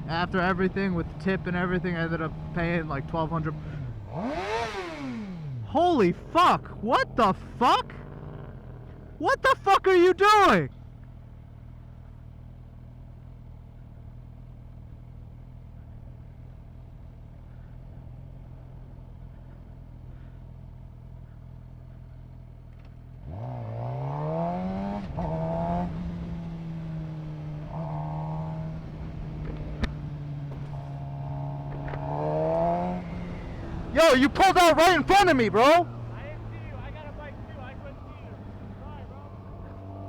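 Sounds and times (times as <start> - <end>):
motorcycle engine revving: 0.0 - 9.2, 22.7 - 40.0.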